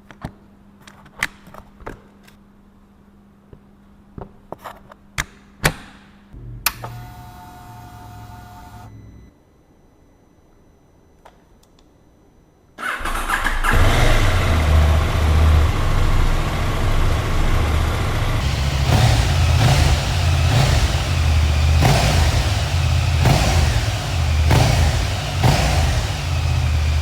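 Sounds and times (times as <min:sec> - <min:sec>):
motorcycle engine starting and idling: 0:12.8 - 0:27.0
engine throttle blips: 0:13.0 - 0:27.0.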